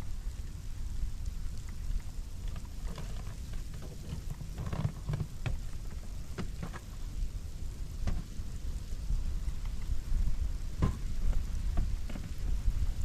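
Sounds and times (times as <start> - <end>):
wind buffeting microphone: 0.0 - 13.0
crackles and taps: 1.6 - 6.9, 8.0 - 8.3, 9.6 - 9.9, 10.8 - 12.4.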